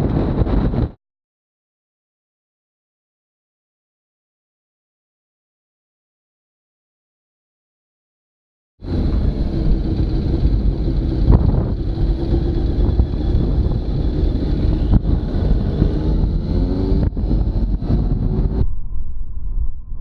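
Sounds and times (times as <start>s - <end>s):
wind buffeting microphone: 0.0s - 1.0s, 8.8s - 20.0s
motorcycle engine running: 8.8s - 18.6s.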